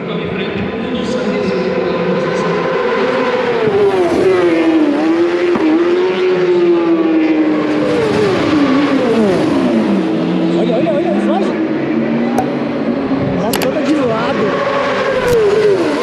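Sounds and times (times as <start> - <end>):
racing motorcycles passing: 1.1 - 16.0.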